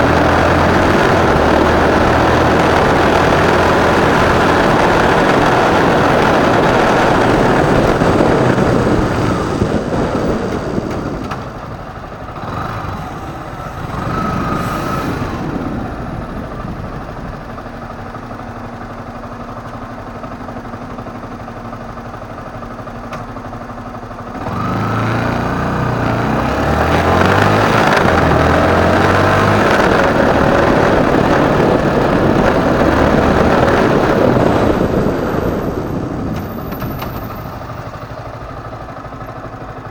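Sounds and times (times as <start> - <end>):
rushing noise at speed: 0.0 - 18.7
motorcycle engine revving: 0.0 - 39.9
motorcycle engine idling: 4.6 - 14.5, 15.4 - 24.4, 34.2 - 39.9.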